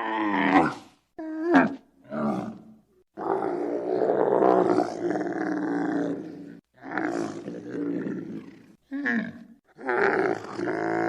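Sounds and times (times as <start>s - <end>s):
wild animal roaring: 0.0s - 11.0s.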